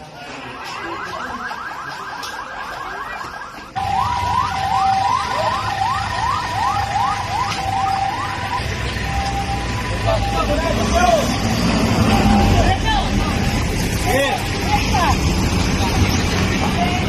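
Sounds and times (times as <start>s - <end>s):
electronic alarm siren whooping: 0.5s - 11.3s.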